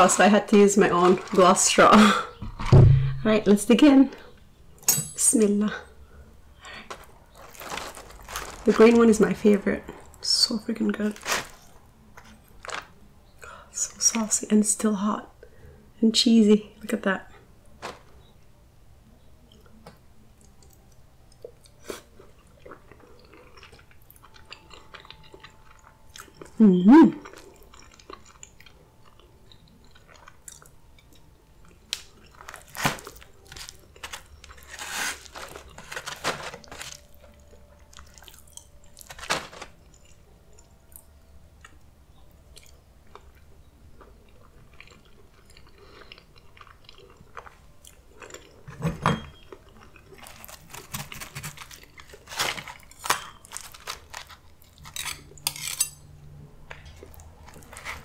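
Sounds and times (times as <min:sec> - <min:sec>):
person chewing food: 0:20.4 - 0:26.6, 0:27.2 - 0:41.8, 0:42.5 - 0:55.5, 0:56.7 - 0:58.0.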